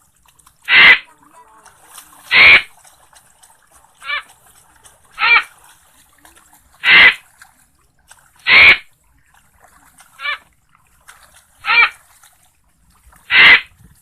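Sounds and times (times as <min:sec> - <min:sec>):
frogs calling: 0:00.7 - 0:01.1, 0:02.3 - 0:02.7, 0:04.0 - 0:04.3, 0:05.2 - 0:05.5, 0:06.8 - 0:07.2, 0:08.4 - 0:08.9, 0:10.2 - 0:10.4, 0:11.6 - 0:12.0, 0:13.3 - 0:13.7.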